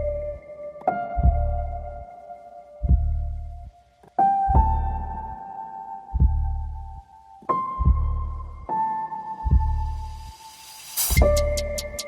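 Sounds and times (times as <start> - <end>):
deep bass hits: 2.8 - 3.6, 6.2 - 6.6, 7.8 - 8.7, 11.2 - 12.0.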